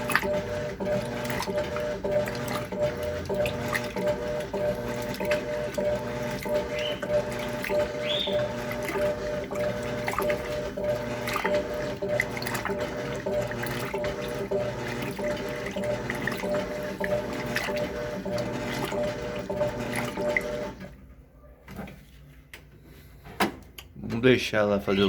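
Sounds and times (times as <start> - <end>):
water churning and sloshing: 0.0 - 21.0
washing machine motor hum: 0.0 - 25.0.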